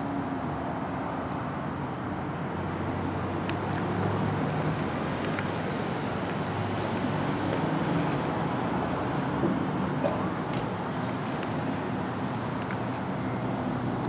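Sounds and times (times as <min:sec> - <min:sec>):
street traffic noise: 0:00.0 - 0:14.0
vehicle engine running: 0:03.0 - 0:14.0.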